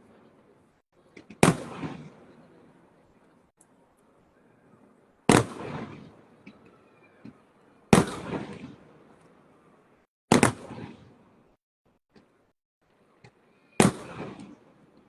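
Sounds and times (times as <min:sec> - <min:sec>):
firework bangs and crackling: 0:01.2 - 0:02.6, 0:05.3 - 0:09.3, 0:10.3 - 0:11.3, 0:13.3 - 0:15.0.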